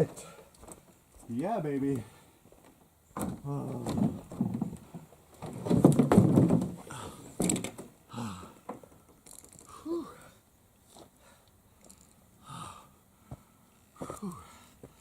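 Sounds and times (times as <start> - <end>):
man groaning and breathing hard: 8.1 - 8.7, 9.7 - 10.4, 12.4 - 13.0, 14.0 - 14.8.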